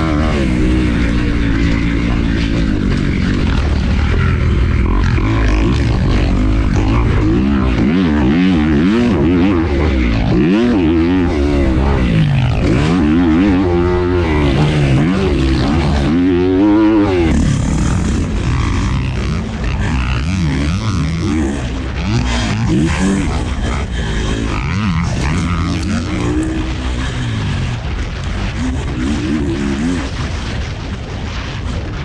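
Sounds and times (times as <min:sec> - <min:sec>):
dirt bike engines revving: 0:00.0 - 0:32.0
low rumble: 0:00.0 - 0:32.0.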